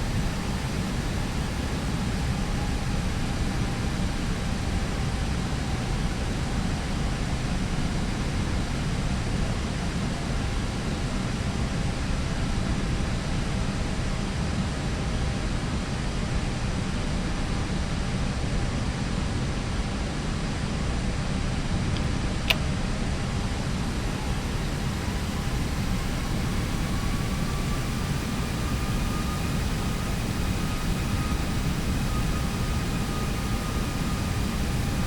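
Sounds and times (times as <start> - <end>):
cockpit airflow rush: 23.3 - 35.0.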